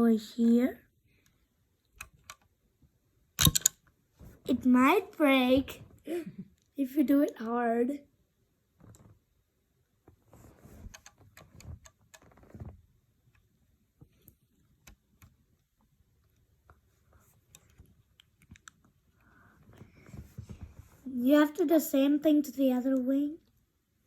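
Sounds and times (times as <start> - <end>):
plastic bricks clicking: 3.4 - 3.8.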